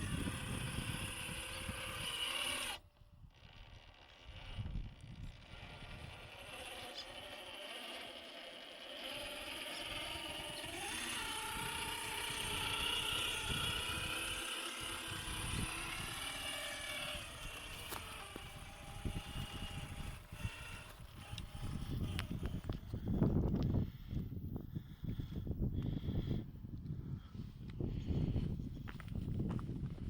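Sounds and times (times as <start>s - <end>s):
electric motor whining: 0.0s - 24.2s
tyres crunching on rough ground: 14.1s - 22.8s.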